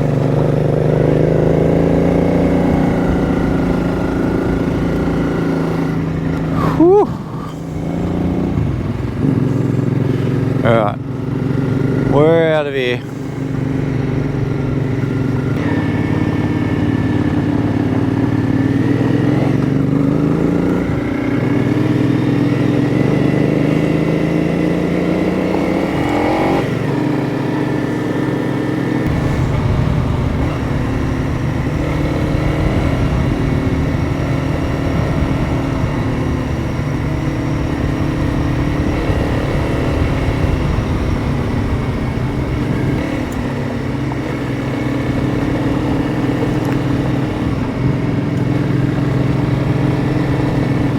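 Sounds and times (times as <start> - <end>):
motorcycle engine accelerating: 0.0 - 50.9.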